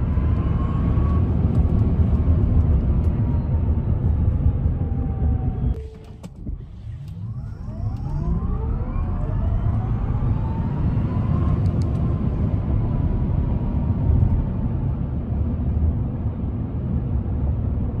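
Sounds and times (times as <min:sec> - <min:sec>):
road and wind rumble: 0:00.0 - 0:18.0
electric motors whining: 0:06.7 - 0:12.0.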